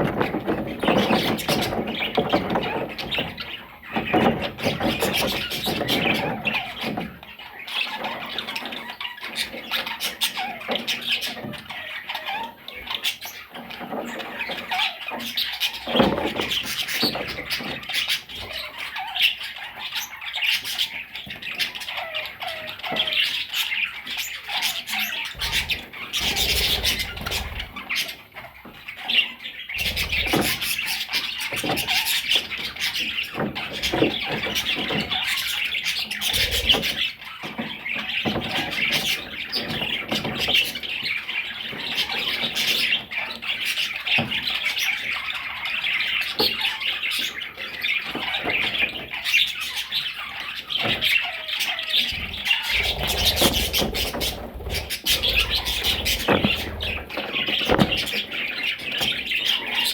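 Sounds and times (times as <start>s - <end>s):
budgerigars chattering and warbling: 0.0s - 59.9s
bird squawks: 0.1s - 59.9s.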